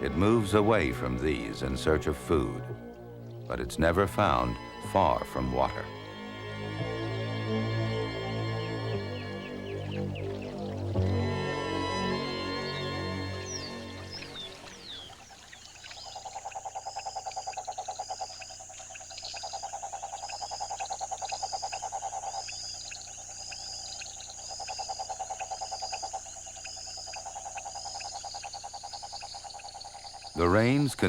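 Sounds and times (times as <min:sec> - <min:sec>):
music: 0:00.0 - 0:15.1
frogs trilling: 0:07.7 - 0:31.0.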